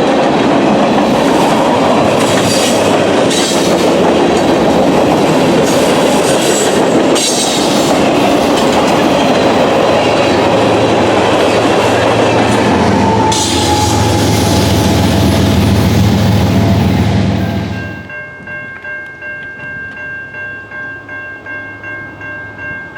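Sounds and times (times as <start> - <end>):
freight train clattering on rails: 0.0 - 18.0.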